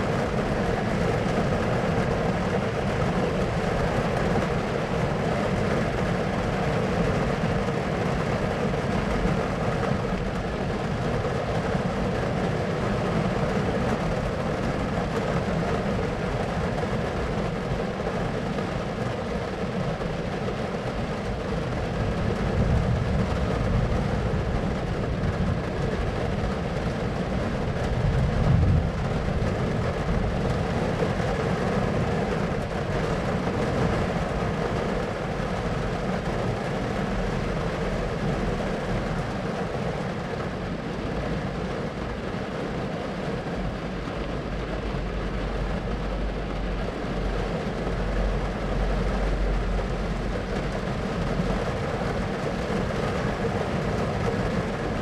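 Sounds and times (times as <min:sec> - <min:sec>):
noisy wash: 0:00.0 - 0:55.0
thunder rumbling: 0:21.9 - 0:31.1.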